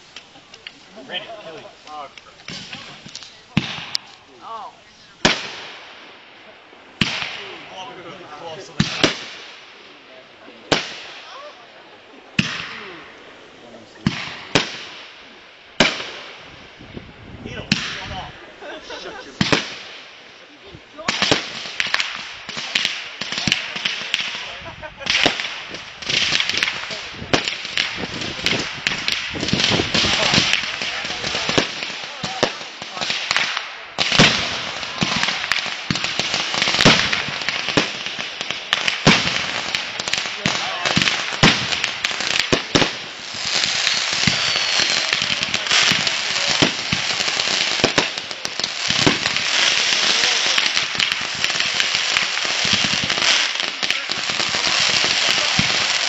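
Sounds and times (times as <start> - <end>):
fireworks cracking: 0.0 - 56.0
fireworks hissing: 0.0 - 56.0.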